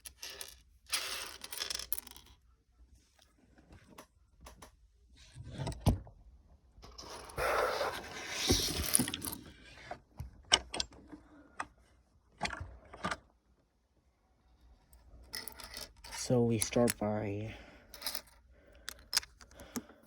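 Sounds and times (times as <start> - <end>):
plastic pieces clicking: 18.0 - 20.0.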